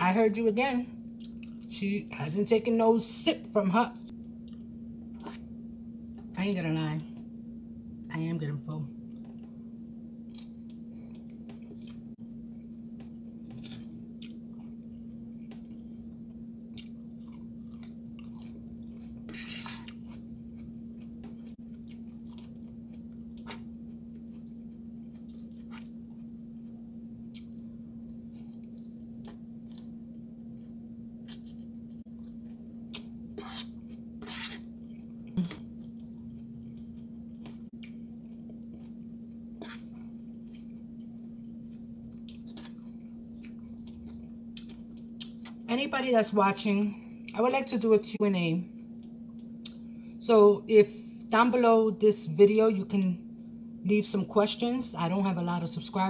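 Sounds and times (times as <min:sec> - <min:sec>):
steady low hum: 0:00.0 - 0:56.0
chewing and mouth sounds: 0:01.2 - 0:01.7, 0:10.2 - 0:30.2, 0:31.2 - 0:45.6.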